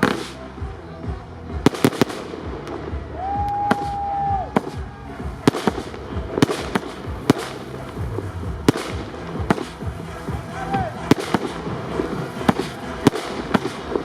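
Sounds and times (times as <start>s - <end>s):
fireworks bangs: 0.0s - 0.6s, 1.5s - 14.0s
firework whistle: 3.1s - 7.5s.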